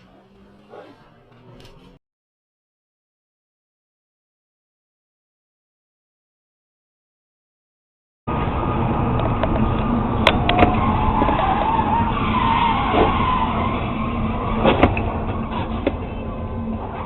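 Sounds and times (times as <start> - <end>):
road noise: 8.3 - 17.0
car tyres squealing: 8.5 - 17.0.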